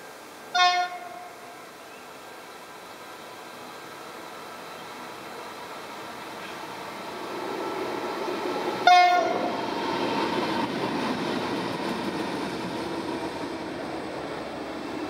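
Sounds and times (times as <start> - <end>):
diesel locomotive engines: 0.0 - 15.0
train horn blast: 0.5 - 1.5, 8.8 - 9.5
train wagons rolling past: 3.6 - 15.0.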